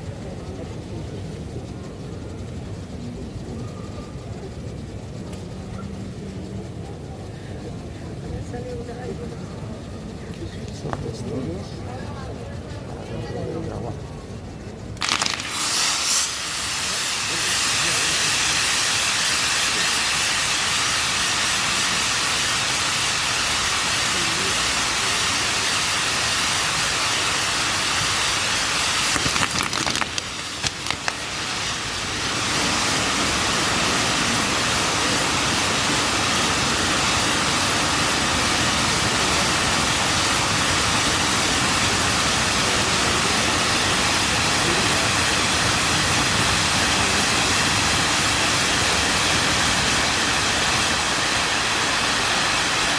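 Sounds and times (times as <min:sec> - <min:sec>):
fireworks hissing and crackling: 0:00.0 - 0:52.9
sharp firework cracks: 0:15.0 - 0:52.9.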